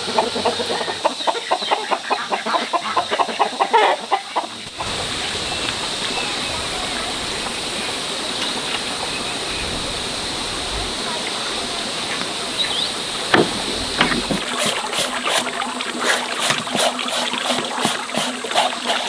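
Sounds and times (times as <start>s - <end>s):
chickens clucking: 0.0s - 19.0s
running water rushing: 4.5s - 19.0s.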